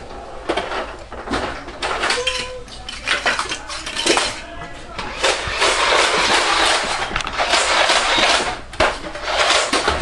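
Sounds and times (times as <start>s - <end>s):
toy blaster firing rapidly: 5.1s - 8.6s, 9.2s - 10.0s.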